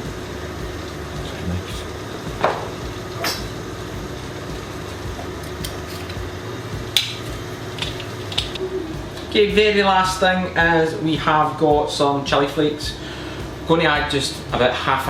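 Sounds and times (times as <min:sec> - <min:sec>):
steady low hum: 0:00.0 - 0:15.0
utensils and dishes clinking: 0:05.0 - 0:06.2, 0:07.0 - 0:09.3.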